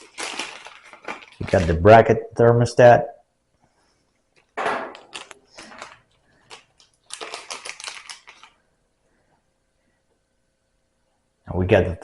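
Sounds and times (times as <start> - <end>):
packaging crinkling: 0.0 - 2.1, 4.3 - 8.7.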